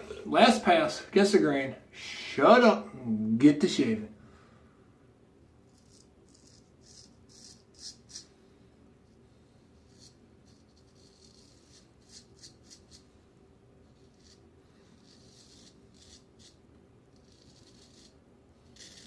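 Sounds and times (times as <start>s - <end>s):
razor scraping stubble: 5.7s - 8.3s, 9.8s - 13.1s, 13.8s - 19.0s.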